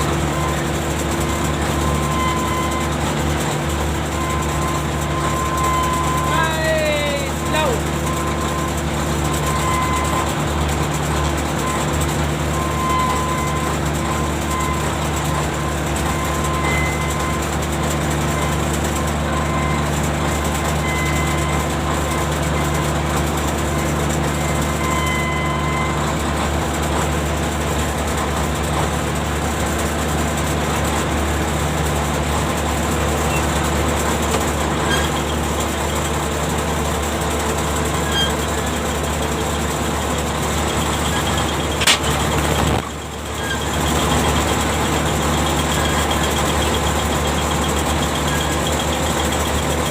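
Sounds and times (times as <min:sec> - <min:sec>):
machinery humming: 0:31.0 - 0:49.9.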